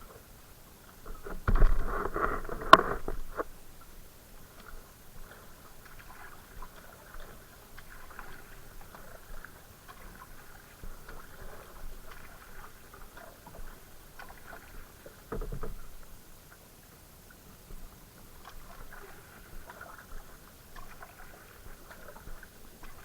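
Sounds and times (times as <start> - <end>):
water splashing around paddle: 0.0 - 23.0
small knocks: 1.0 - 3.5.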